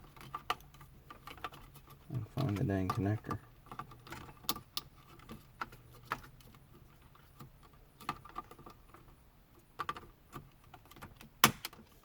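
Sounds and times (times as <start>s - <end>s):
plastic connectors clicking and rattling: 0.0s - 9.1s.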